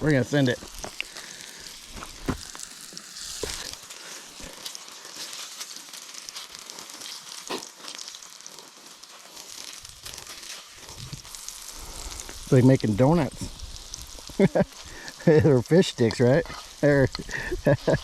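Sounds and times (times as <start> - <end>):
dough sizzling in hot fat: 0.0 - 18.0.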